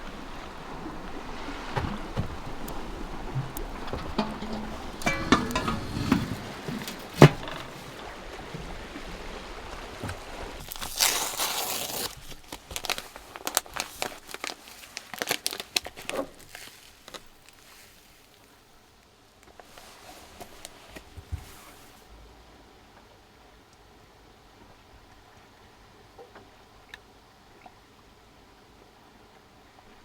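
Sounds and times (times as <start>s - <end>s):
packaging crinkling and tearing: 10.6s - 18.2s.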